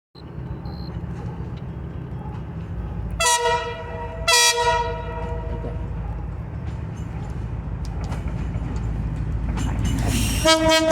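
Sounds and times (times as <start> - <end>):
locomotive horn blasts: 3.2 - 5.8, 10.4 - 10.9.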